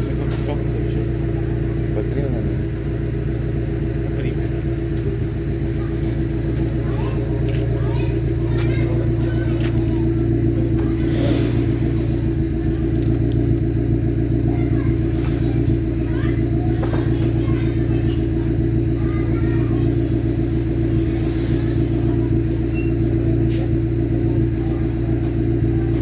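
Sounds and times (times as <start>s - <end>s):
car exhaust idling: 0.0s - 26.0s.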